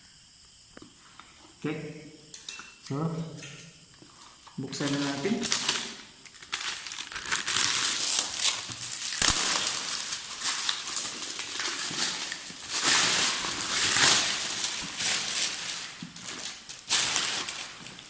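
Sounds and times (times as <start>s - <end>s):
packaging crinkling and rustling: 4.6s - 18.0s.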